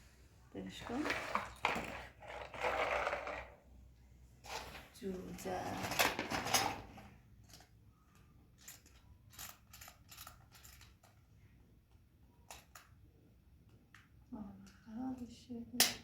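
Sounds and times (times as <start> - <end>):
rustling of things handled: 4.3 - 11.3.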